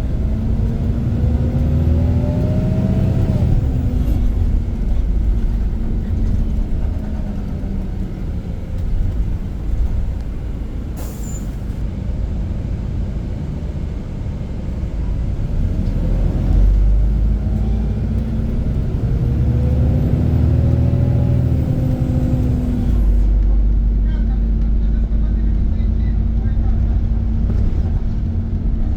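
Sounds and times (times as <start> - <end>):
bus diesel engine running: 0.0 - 28.9
road noise: 0.0 - 28.9.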